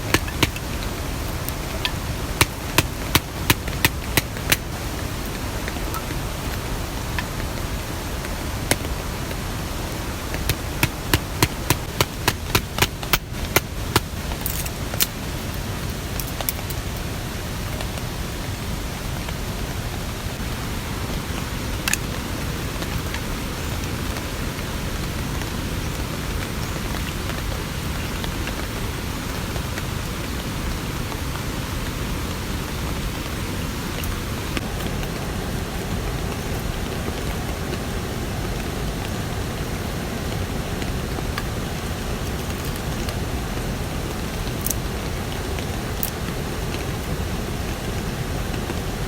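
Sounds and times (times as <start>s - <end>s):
steady rain falling: 0.0s - 49.0s
sharp taps: 0.1s - 0.9s.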